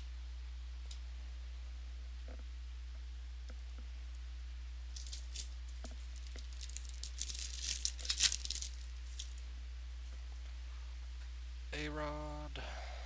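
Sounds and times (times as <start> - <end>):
low electrical hum: 0.0 - 13.0
wrapper crinkling and tearing: 4.9 - 9.4.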